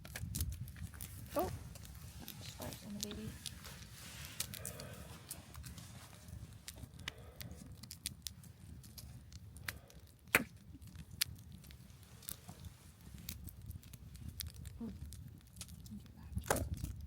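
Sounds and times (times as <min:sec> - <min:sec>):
wood crackling and popping: 0:00.0 - 0:17.0.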